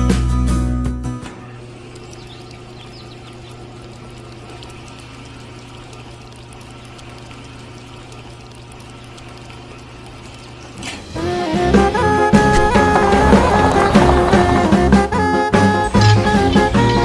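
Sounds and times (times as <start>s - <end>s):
small motor humming: 1.5s - 13.3s
water pouring: 1.5s - 15.2s.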